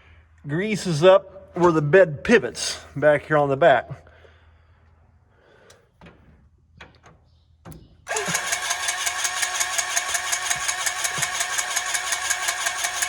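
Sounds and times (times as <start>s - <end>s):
truck engine running: 8.1s - 13.0s.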